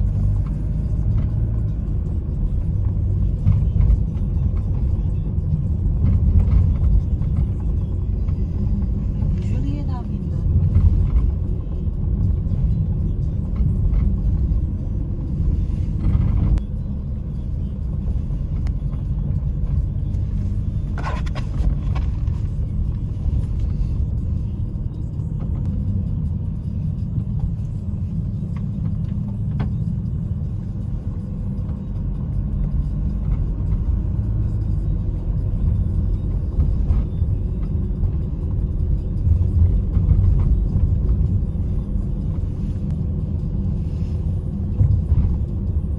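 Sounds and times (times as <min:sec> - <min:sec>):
road and engine rumble in cabin: 0:00.0 - 0:45.9.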